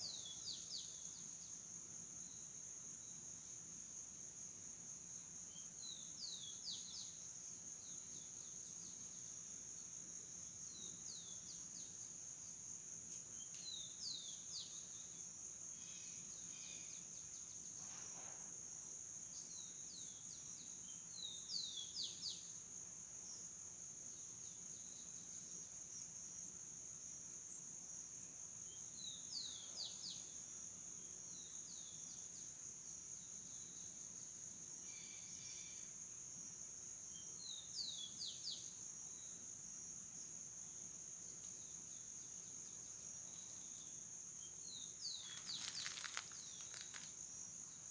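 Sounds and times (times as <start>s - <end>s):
high-pitched insect chorus: 40.2s - 47.9s
bird chirping: 45.0s - 47.1s.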